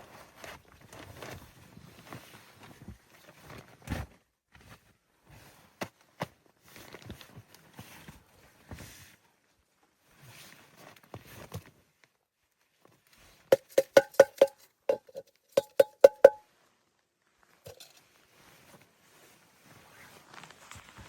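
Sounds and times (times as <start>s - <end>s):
hard objects knocking together: 13.5s - 16.4s, 17.7s - 18.0s.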